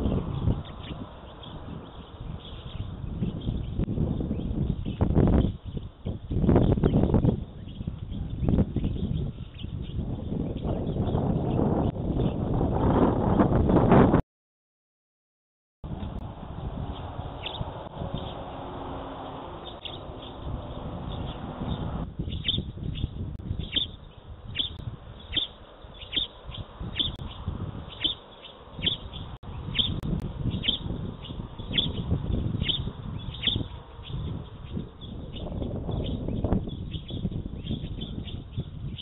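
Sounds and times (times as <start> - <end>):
small bird chirping: 0.0 - 12.4, 16.1 - 18.6, 19.2 - 39.0
truck passing: 15.9 - 22.1.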